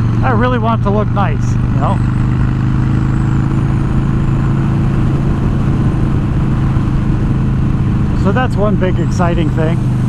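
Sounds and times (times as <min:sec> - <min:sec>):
motorcycle engine cruising: 0:00.0 - 0:10.0
road noise: 0:00.0 - 0:10.0
wind: 0:00.0 - 0:10.0.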